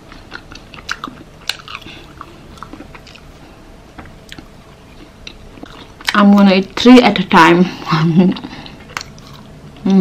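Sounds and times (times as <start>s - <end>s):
person chewing: 0.0s - 3.4s, 4.0s - 6.2s, 8.6s - 9.9s.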